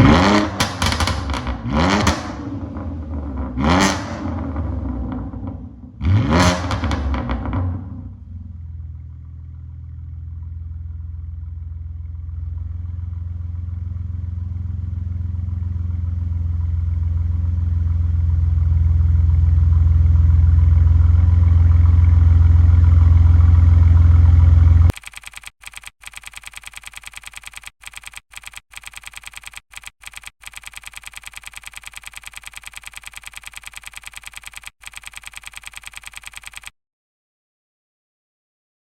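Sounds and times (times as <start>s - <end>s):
car engine running: 0.0s - 24.9s
rapidly repeating sound: 24.9s - 36.7s.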